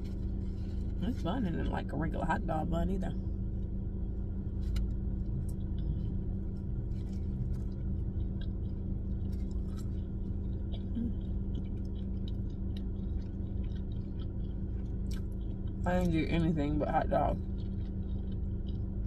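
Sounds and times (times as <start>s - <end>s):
steady low hum: 0.0s - 19.0s
person chewing food: 3.6s - 15.9s, 17.4s - 19.0s
wet mouth clicks and smacks: 8.2s - 15.8s.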